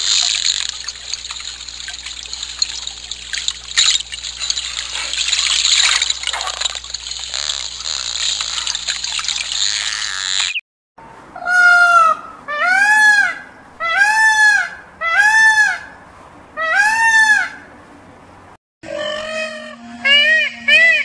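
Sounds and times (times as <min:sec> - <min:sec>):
hiss of moving water: 0:00.0 - 0:09.8.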